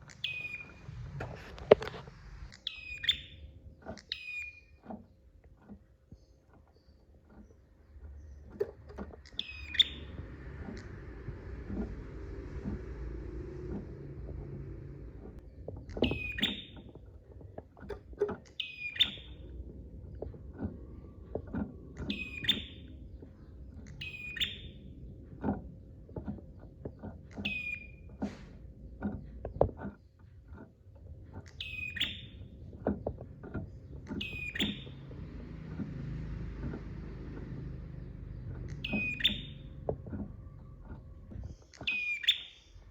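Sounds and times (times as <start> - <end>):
low steady hum: 0.0 - 42.9
bird song with whistle: 0.1 - 0.8, 2.5 - 4.7, 9.3 - 10.8, 16.0 - 16.9, 18.6 - 19.5, 22.0 - 23.0, 23.8 - 24.9, 27.4 - 28.0, 31.5 - 32.5, 34.2 - 35.1, 38.4 - 39.8, 41.7 - 42.9.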